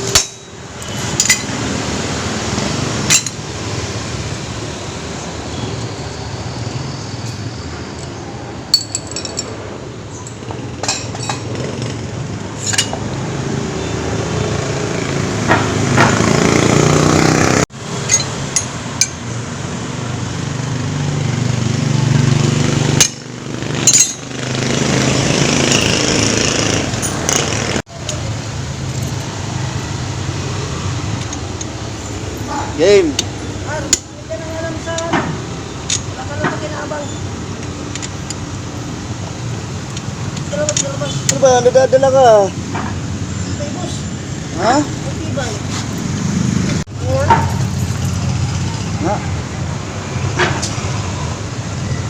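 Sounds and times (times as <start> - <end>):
metal tools clinking: 0.0 - 1.6, 3.0 - 3.4, 7.2 - 11.6, 12.6 - 13.0, 18.0 - 19.2, 23.0 - 24.3, 31.1 - 38.5.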